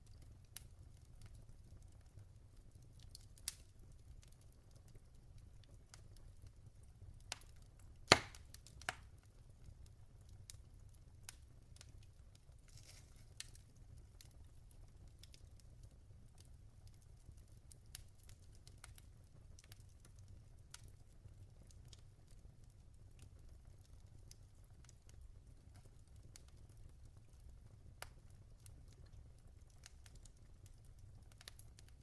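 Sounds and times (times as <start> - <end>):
logs crackling in fireplace: 0.0 - 32.0
loud fire pop: 8.1 - 8.4.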